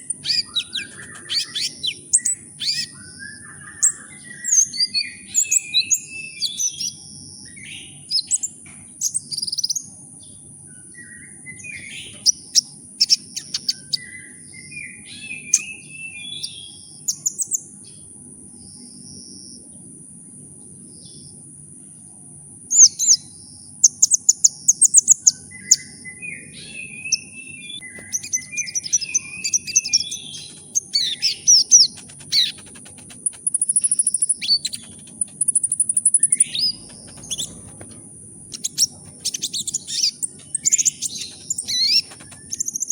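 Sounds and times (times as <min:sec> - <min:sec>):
bird singing high trills: 0:00.0 - 0:09.7, 0:25.3 - 0:42.9
faint low hum: 0:00.0 - 0:42.9
steady high-pitched whine: 0:27.4 - 0:42.9.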